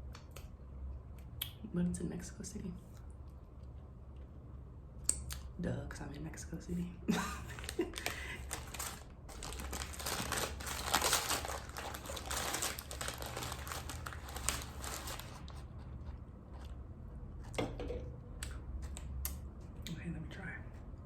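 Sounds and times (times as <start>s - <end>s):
packaging being crumpled: 7.4s - 15.7s.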